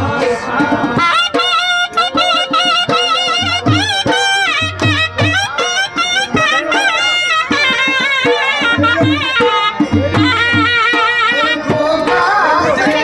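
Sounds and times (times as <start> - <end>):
drum beat: 0.0 - 13.0
double-reed pipe melody: 1.4 - 13.0.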